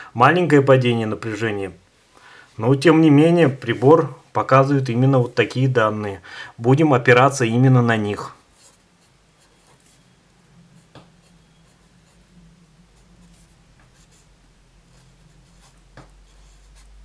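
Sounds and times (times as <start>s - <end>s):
marker scratching on paper: 8.5s - 12.3s, 12.9s - 14.3s, 14.9s - 17.0s.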